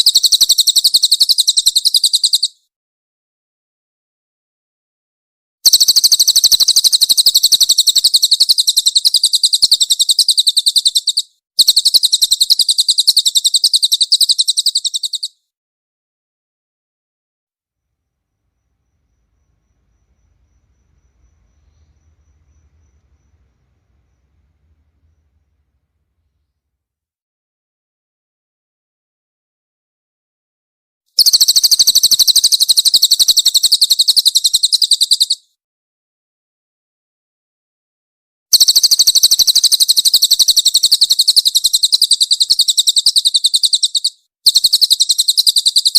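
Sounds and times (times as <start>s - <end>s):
bird singing high trills: 5.7s - 15.4s, 18.6s - 26.4s.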